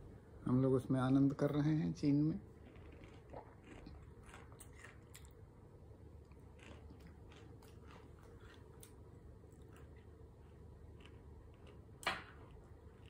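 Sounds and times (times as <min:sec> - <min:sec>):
low room hum: 0:00.0 - 0:13.0
person chewing crunchy snack: 0:02.5 - 0:05.5, 0:06.2 - 0:13.0.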